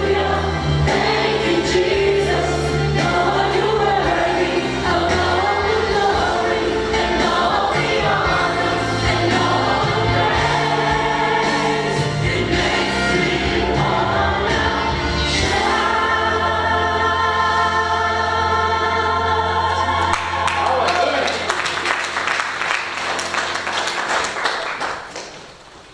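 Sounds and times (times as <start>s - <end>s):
choir singing gospel song: 0.0s - 24.0s.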